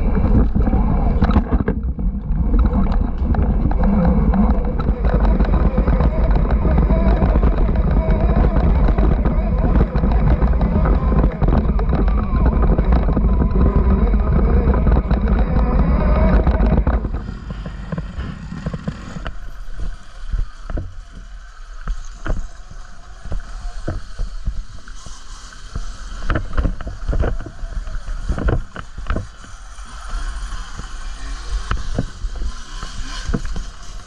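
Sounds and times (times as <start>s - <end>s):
bike knocks and rattles: 0.0s - 19.5s.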